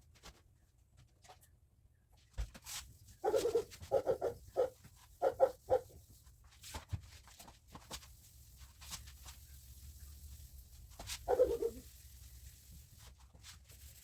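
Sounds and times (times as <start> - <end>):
animal calling: 3.2 - 5.8, 11.3 - 11.8.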